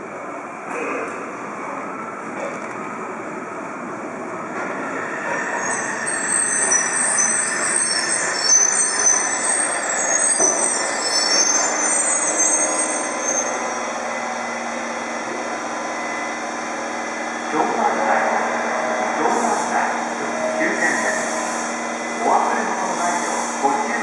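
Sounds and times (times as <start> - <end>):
train rumbling through station: 0.0 - 24.0
high-pitched metallic wheel squeal: 5.1 - 14.4.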